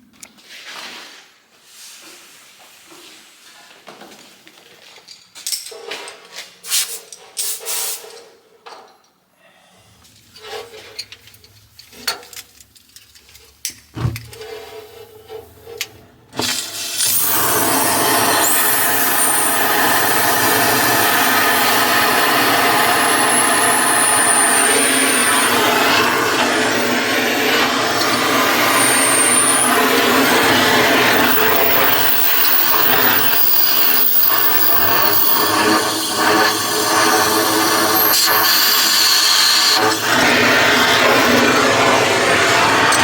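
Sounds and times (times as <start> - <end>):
short gas hisses: 6.7 - 8.1
clatter and knocks of equipment: 10.0 - 14.6
cutting torch burning with hiss: 16.6 - 43.0.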